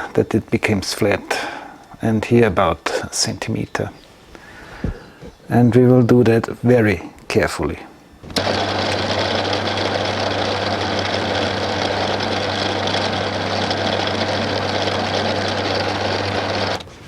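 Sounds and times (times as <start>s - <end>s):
boring bar cutting metal: 8.3s - 16.9s
lathe motor hum: 8.3s - 17.0s.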